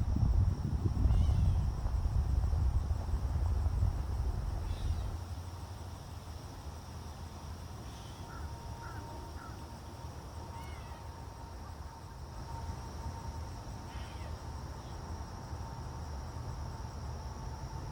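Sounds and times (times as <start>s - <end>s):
low rumble: 0.0s - 5.2s
insect drone: 0.0s - 17.9s.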